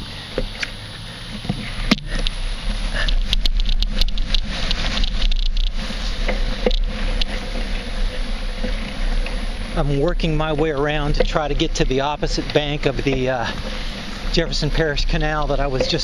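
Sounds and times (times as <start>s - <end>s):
bike clicking and rattling: 0.0s - 16.0s
wind and road rumble: 0.0s - 16.0s.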